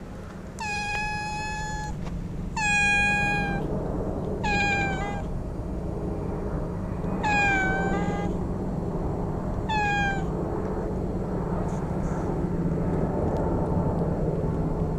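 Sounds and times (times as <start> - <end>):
steady low rumble: 0.0 - 14.9
cat meowing: 0.6 - 2.0, 2.6 - 3.7, 4.4 - 5.3, 7.2 - 8.4, 9.7 - 10.3.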